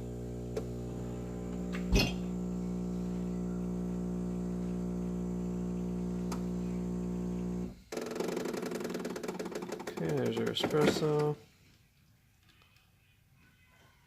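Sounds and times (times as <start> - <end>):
espresso machine pump humming: 0.0 - 9.4.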